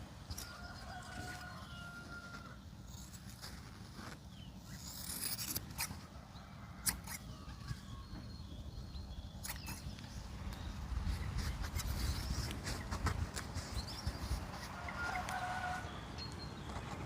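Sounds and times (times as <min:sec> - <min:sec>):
small clicks and scrapes on metal parts: 0:00.3 - 0:06.1, 0:06.8 - 0:07.8, 0:09.4 - 0:10.1.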